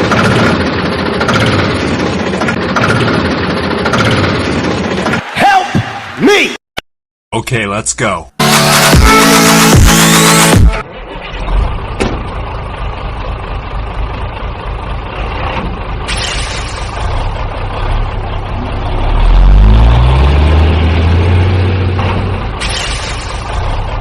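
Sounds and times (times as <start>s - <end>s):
heavy vehicle engine revving: 8.4s - 24.0s.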